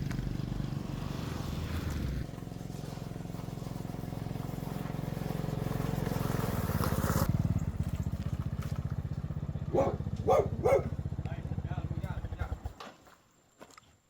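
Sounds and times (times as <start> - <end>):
small motorbike engine revving: 0.0 - 12.8
dog barking: 9.7 - 11.0.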